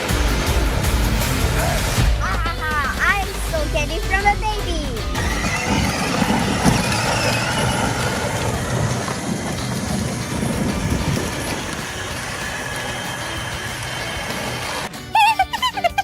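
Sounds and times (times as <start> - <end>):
plastic toy wheels rumbling: 5.1 - 14.9.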